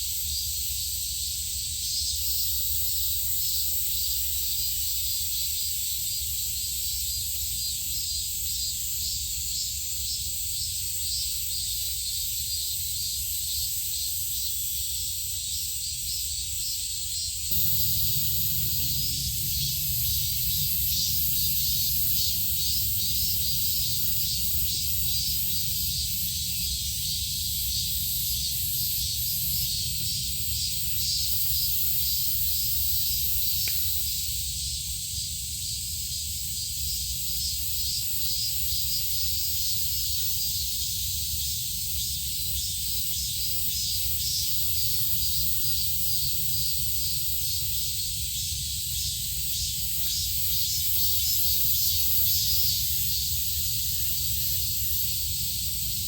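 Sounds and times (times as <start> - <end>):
shrill insect chorus: 0.0 - 56.0
continuous low rumble: 17.4 - 37.2.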